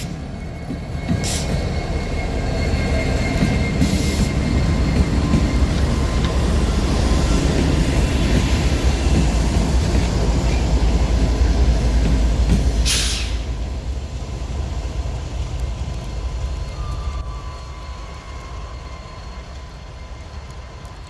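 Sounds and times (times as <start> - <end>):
freight train rumbling by: 0.0 - 21.0
short hiss: 12.8 - 13.4.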